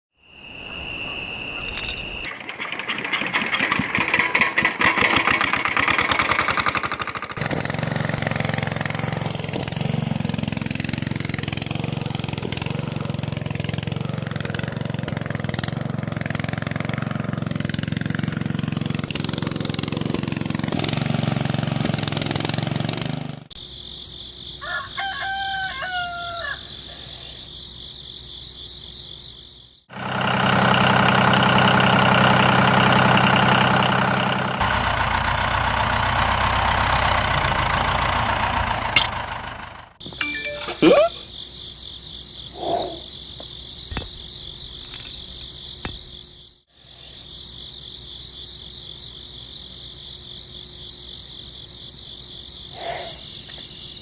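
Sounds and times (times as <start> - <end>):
small engine running: 1.8 - 23.6, 29.9 - 40.6, 43.9 - 46.2
rooster crowing: 24.6 - 27.4.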